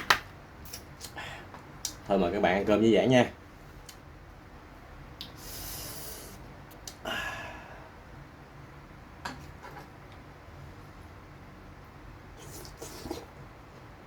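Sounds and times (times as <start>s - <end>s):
breath through the nose: 5.4s - 6.4s
mouth eating noise: 12.4s - 13.4s.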